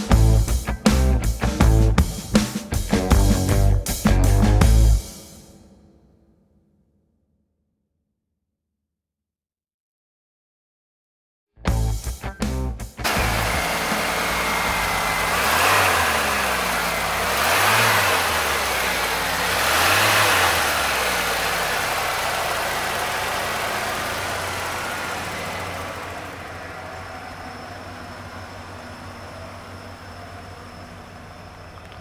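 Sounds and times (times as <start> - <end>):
car engine idling: 0.0 - 5.9, 13.0 - 32.0
car engine revving: 13.0 - 32.0.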